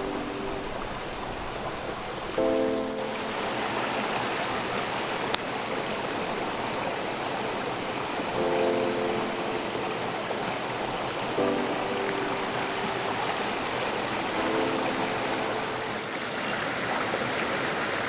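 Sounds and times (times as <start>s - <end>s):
soft background music chords: 0.0s - 1.6s, 2.4s - 4.8s, 8.2s - 16.2s
stream flowing: 0.0s - 18.0s.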